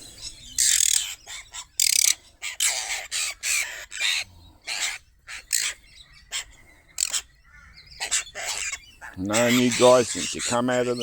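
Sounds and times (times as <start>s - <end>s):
magpies squawking: 0.0s - 11.0s.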